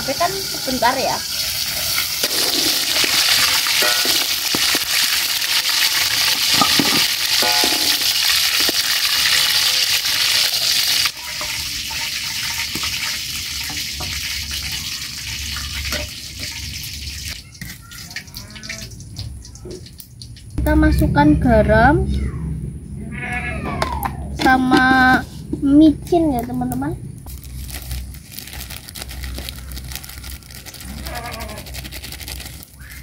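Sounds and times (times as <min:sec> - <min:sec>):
peppers sizzling in hot oil: 0:00.0 - 0:18.0, 0:27.3 - 0:33.0.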